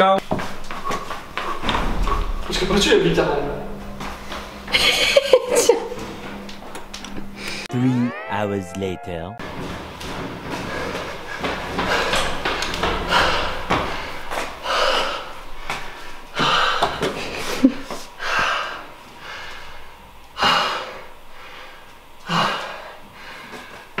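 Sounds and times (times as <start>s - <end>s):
man panting and gasping: 20.4s - 23.9s.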